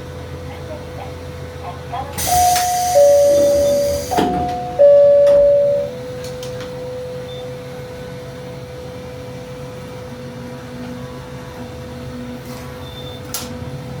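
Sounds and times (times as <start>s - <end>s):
electronic chime note: 2.3s - 6.0s
steady low hum: 2.4s - 6.2s.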